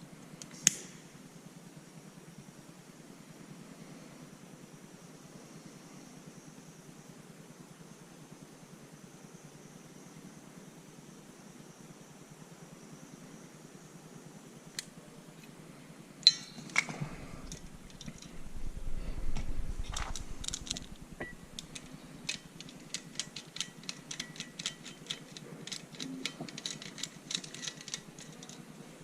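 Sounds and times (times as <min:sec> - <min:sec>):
metallic clink: 0:16.2 - 0:18.5, 0:19.8 - 0:28.9
low rumble: 0:17.0 - 0:22.2.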